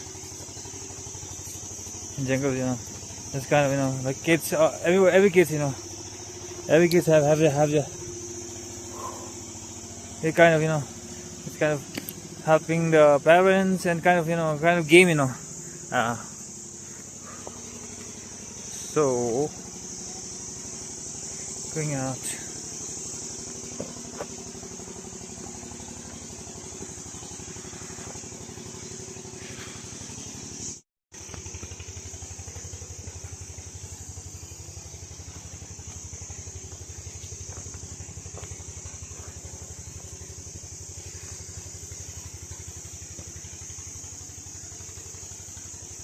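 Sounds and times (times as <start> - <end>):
insects buzzing: 0.0 - 46.0
small engine idling: 0.0 - 46.0.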